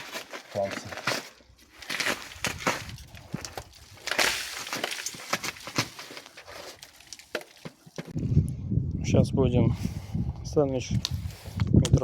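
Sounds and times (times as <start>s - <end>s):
polystyrene foam cracking: 0.0s - 7.8s.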